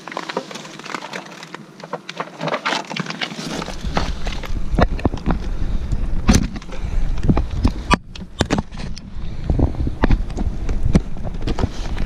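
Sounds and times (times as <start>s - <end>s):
ice crunching and cracking: 0.0s - 12.0s
wind rumble on microphone: 3.6s - 12.0s.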